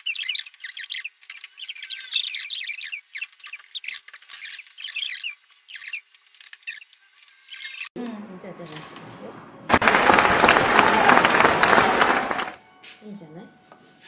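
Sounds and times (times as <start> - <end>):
small birds chirping: 0.0 - 8.0.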